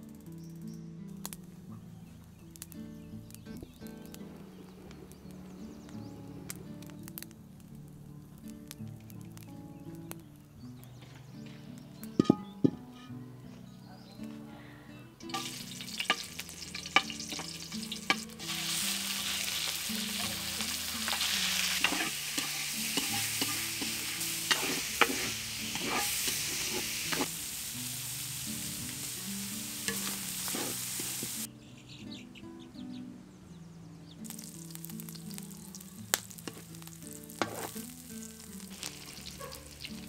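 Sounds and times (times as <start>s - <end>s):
utensils tapping on wok: 12.0s - 13.1s, 15.3s - 31.5s, 34.3s - 40.0s
pork sizzling in a wok: 15.2s - 31.5s, 34.2s - 40.0s.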